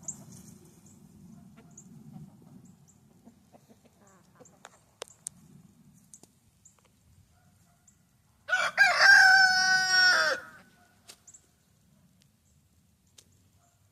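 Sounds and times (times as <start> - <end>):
rooster crowing: 8.5 - 10.7.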